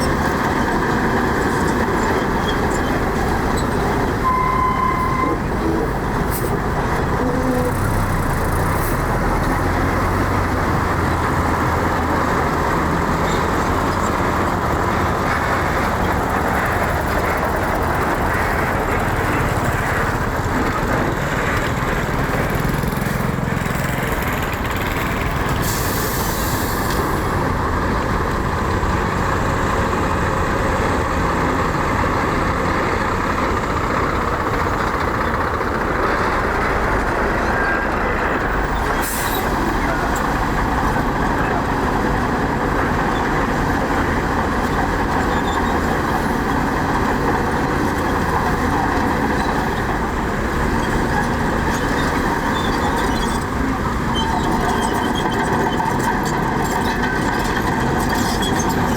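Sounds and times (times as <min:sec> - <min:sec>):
heavy diesel machinery running: 0:00.0 - 0:58.9.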